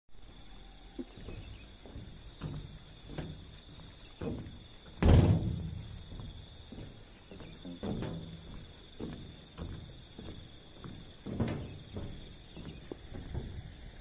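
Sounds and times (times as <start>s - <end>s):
crickets chirring: 0.1s - 14.0s
loud sudden thump: 5.0s - 5.8s.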